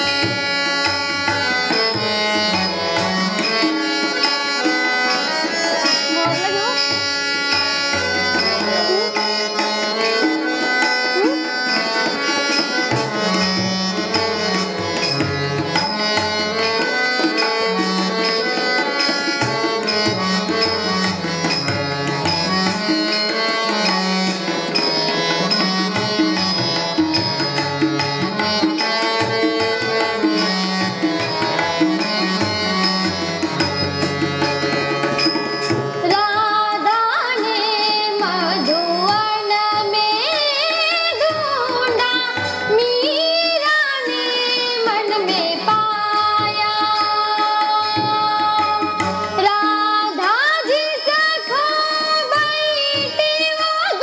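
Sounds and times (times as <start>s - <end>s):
tabla-style percussion: 0.0s - 54.0s.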